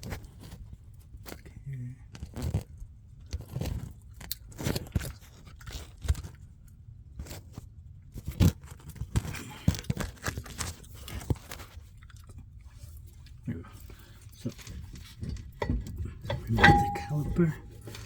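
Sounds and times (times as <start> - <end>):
metal parts knocking and scraping: 15.2 - 18.0.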